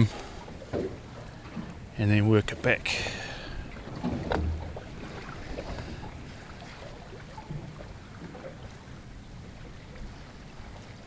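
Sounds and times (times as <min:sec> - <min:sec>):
water lapping against boat hull: 0:00.0 - 0:11.0
wind buffeting microphone: 0:02.5 - 0:07.7
faint knocks: 0:04.0 - 0:06.0.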